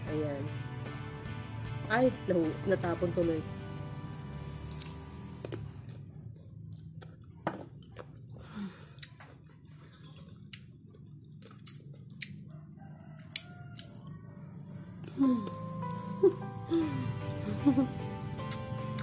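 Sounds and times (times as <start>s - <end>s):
low steady hum: 1.7s - 19.0s
chewing crunchy mango: 4.6s - 14.2s, 18.3s - 19.0s.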